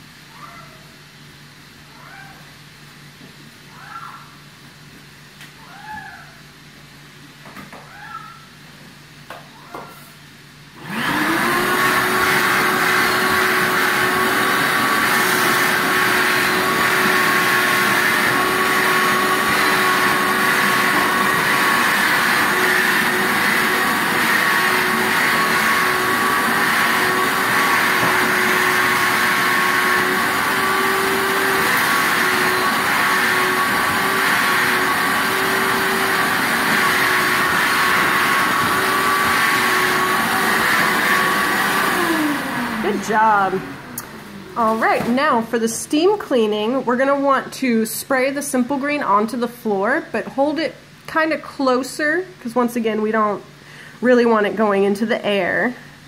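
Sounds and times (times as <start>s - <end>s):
vacuum cleaner motor running: 10.8s - 45.5s.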